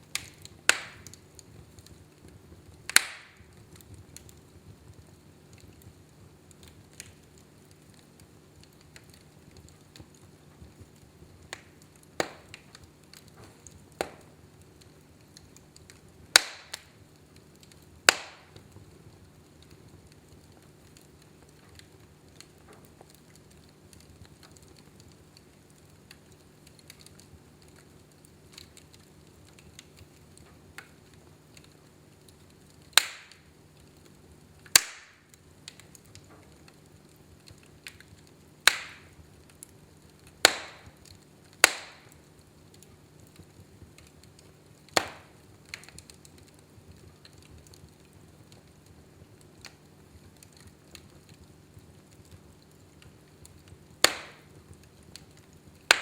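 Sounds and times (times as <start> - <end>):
faint fire crackling: 0.0 - 56.0
loud sharp pops of logs: 0.1 - 1.2, 2.9 - 3.6, 11.5 - 14.4, 15.4 - 17.0, 17.6 - 18.9, 32.2 - 33.6, 34.6 - 42.9, 44.0 - 46.6, 53.0 - 54.5, 55.5 - 56.0.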